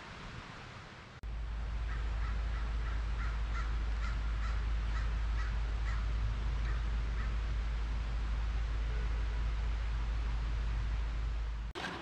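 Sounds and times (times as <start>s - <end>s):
steady low rumble: 0.0s - 11.8s
bird harsh crow-like calls: 1.8s - 7.4s.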